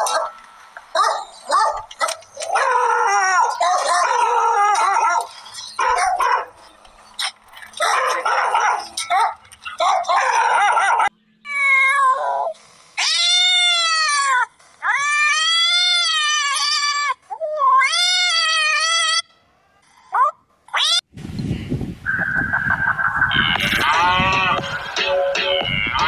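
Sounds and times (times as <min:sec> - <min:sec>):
cat meowing: 0:11.5 - 0:14.4.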